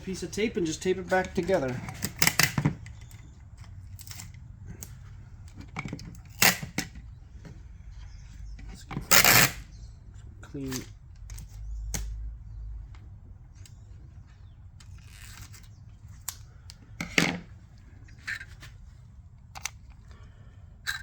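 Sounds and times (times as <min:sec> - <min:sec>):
handling clicks: 0:19.4 - 0:20.1.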